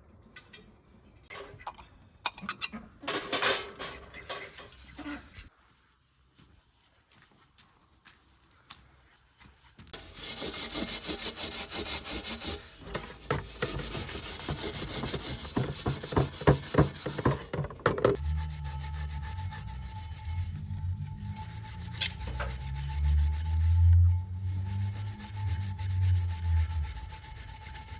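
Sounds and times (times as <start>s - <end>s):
scrubbing copper dish: 10.0s - 27.9s
low hum: 18.2s - 27.9s.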